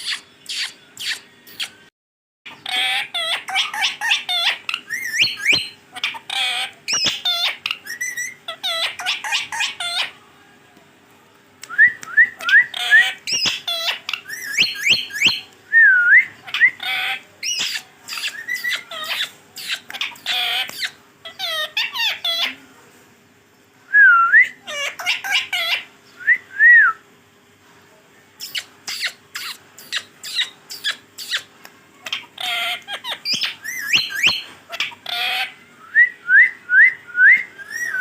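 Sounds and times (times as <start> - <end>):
parrot chattering and squawking: 0.0 - 1.8, 2.5 - 10.2, 12.4 - 15.5, 16.4 - 22.6, 24.6 - 25.9, 28.4 - 35.6.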